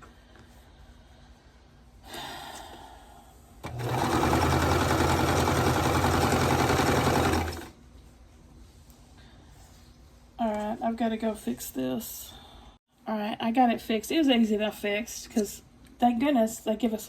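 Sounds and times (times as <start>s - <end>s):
sewing machine stitching: 3.6s - 7.7s.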